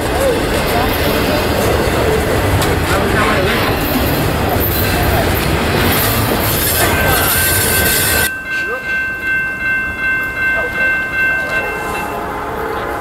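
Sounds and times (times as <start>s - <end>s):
freight cars rumbling past: 0.0s - 8.4s.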